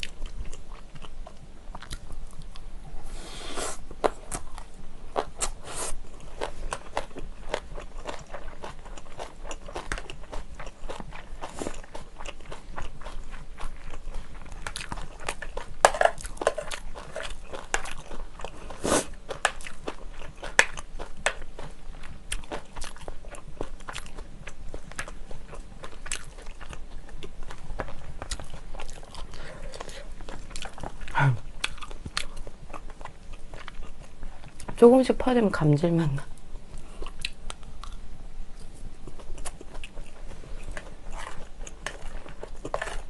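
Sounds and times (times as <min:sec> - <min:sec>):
chewing with clicks and crackles: 0:00.0 - 0:02.7, 0:04.0 - 0:38.0, 0:38.6 - 0:43.0.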